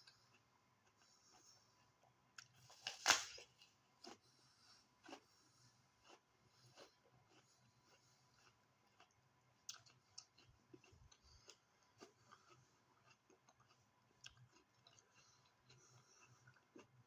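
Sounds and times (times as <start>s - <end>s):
faint apple chewing crunches: 0.0s - 17.0s.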